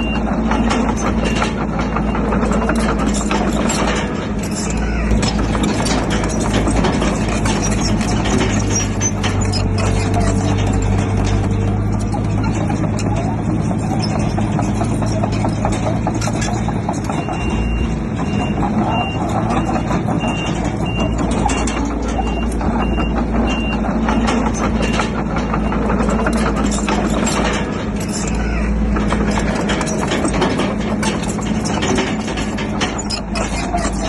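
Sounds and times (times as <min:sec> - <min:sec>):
reversing alarm beeps: 0:00.0 - 0:01.5, 0:17.2 - 0:24.3
bulldozer diesel engine: 0:00.0 - 0:34.0
machinery clatter: 0:00.0 - 0:34.0.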